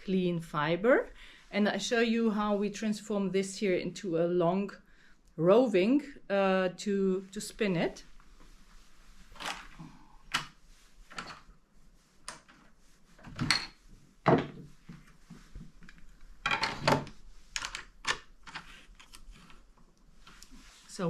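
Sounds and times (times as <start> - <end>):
fleece rustling: 7.4 - 16.4, 17.0 - 21.0.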